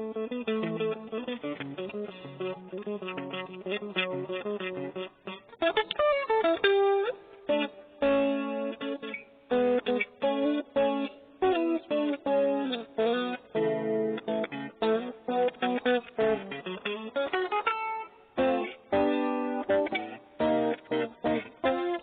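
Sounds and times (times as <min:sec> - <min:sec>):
guitar picked notes and chords: 0:00.0 - 0:22.0.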